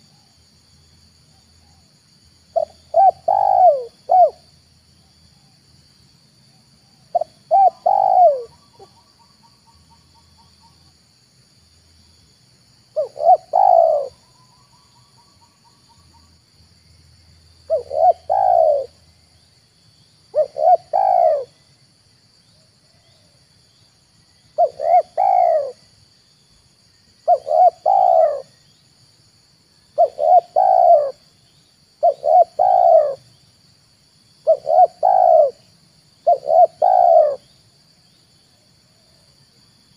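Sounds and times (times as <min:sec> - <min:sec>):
faint high-pitched whine: 0:00.0 - 0:39.9
dove cooing: 0:02.5 - 0:04.4, 0:07.1 - 0:09.1, 0:12.9 - 0:14.3, 0:17.7 - 0:19.0, 0:20.3 - 0:21.6, 0:24.6 - 0:25.9, 0:27.2 - 0:28.6, 0:30.0 - 0:31.2, 0:32.0 - 0:33.3, 0:34.4 - 0:37.5.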